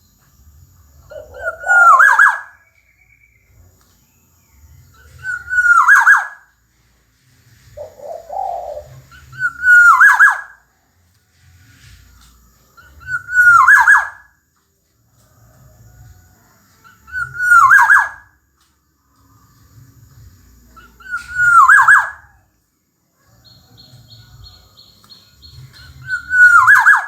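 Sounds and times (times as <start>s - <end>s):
oriole fluting phrases: 1.0s - 3.6s, 4.9s - 6.4s, 7.7s - 10.6s, 12.8s - 14.2s, 16.8s - 18.3s, 20.7s - 22.4s, 23.4s - 27.0s.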